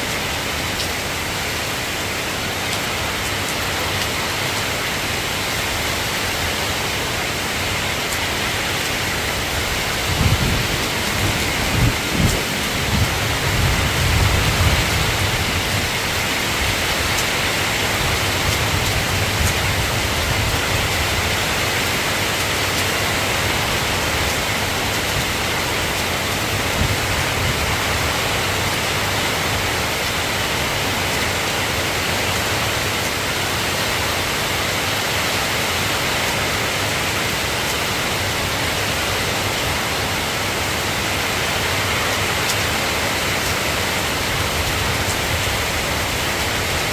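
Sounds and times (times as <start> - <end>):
steady rain falling: 0.0 - 46.9
low thunder rumble: 9.4 - 22.0.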